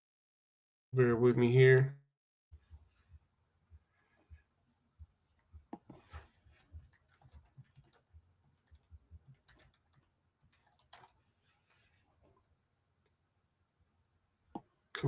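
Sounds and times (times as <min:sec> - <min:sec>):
faint clicking and tapping: 0:02.6 - 0:13.2.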